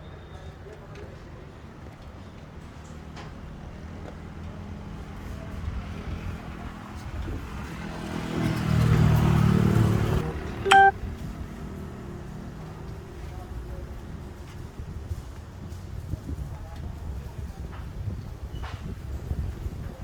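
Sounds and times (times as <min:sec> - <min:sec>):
short horn beep: 0:10.7 - 0:10.9.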